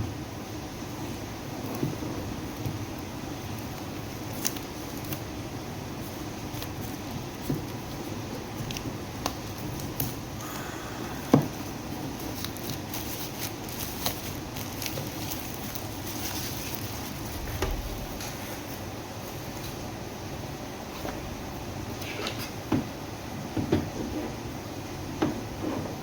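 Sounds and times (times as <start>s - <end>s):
packaging clicks and rustles: 2.5s - 5.3s, 6.0s - 10.2s, 11.5s - 18.4s.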